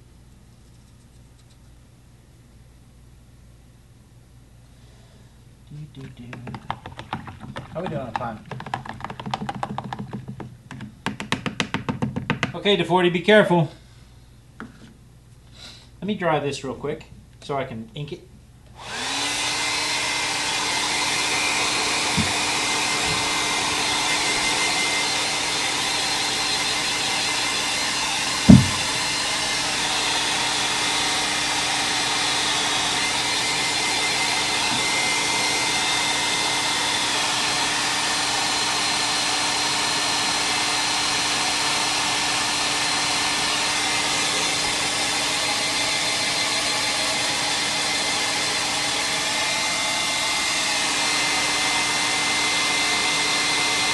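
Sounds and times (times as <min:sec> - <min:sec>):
hot-air dryer blowing: 0:06.4 - 0:12.6, 0:18.7 - 0:53.9
loud thump: 0:28.4 - 0:29.1.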